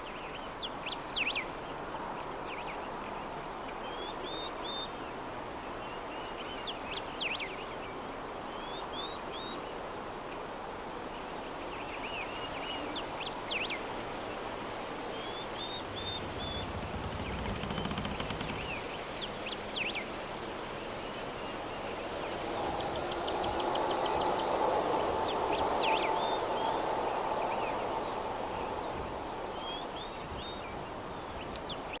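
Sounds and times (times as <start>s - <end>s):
soft breeze blowing: 9.2s - 32.0s
small birds chirping: 14.9s - 20.1s.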